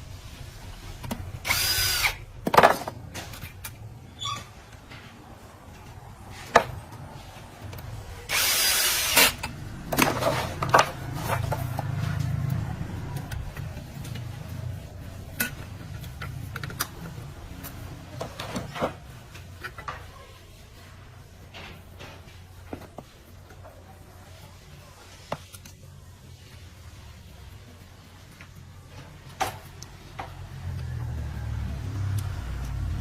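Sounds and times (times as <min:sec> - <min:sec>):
power drill running: 0:01.4 - 0:02.2, 0:08.3 - 0:09.4.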